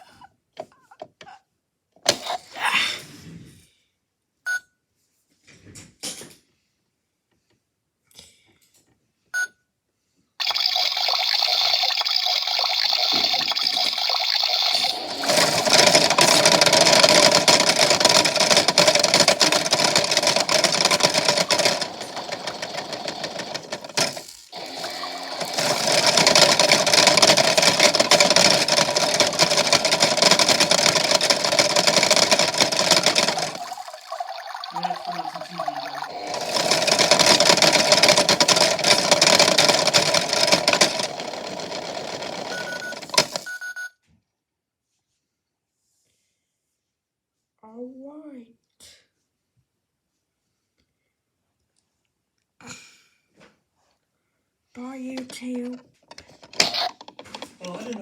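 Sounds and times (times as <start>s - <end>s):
water churning: 10.4s - 40.9s
toy washing machine whirring: 10.4s - 43.8s, 54.9s - 58.0s.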